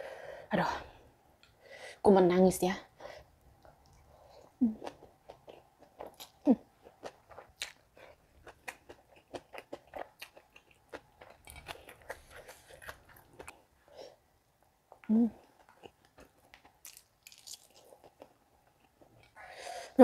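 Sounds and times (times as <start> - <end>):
crispy food crunching: 4.8 - 13.7, 15.4 - 19.1.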